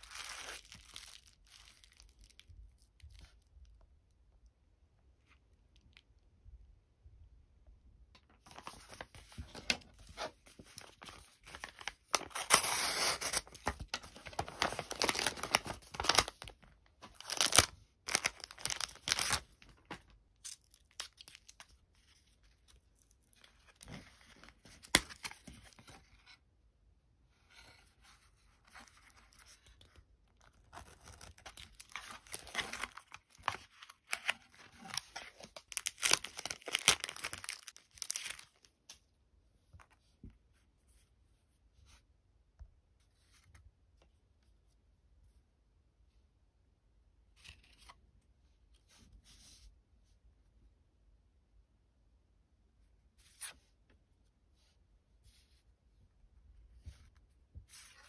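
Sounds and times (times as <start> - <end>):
packaging tearing and crinkling: 0.0 - 2.4, 10.8 - 16.5, 17.1 - 21.6, 30.5 - 38.7.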